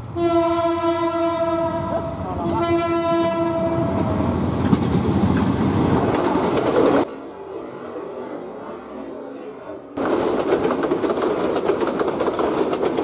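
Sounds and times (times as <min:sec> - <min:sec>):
locomotive passing on rails: 0:00.0 - 0:13.0
locomotive horn blasts: 0:00.1 - 0:04.2.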